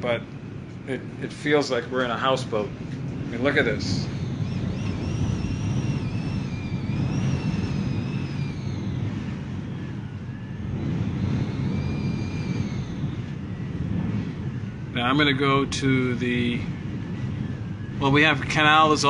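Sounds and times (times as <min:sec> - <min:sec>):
high wavering wind whistle: 0:00.0 - 0:19.0
hurricane wind rumbling: 0:00.0 - 0:19.0.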